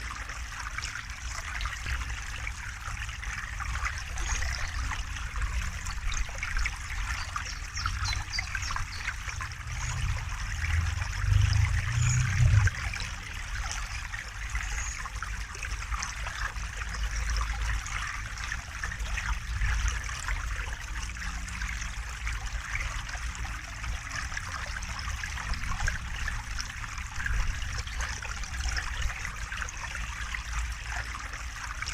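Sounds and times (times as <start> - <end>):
river water flowing: 0.0 - 31.9
low rumble: 8.8 - 13.9.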